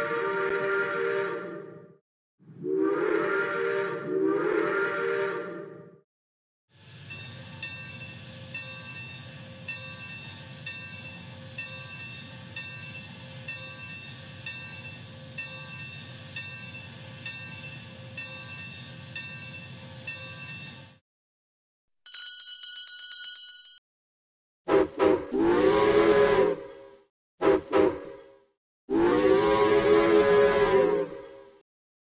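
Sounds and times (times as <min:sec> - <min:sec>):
steam locomotive bell ringing: 0:06.9 - 0:21.0, 0:22.1 - 0:23.8
small tram bell ringing rapidly: 0:07.1 - 0:21.0, 0:22.1 - 0:23.8.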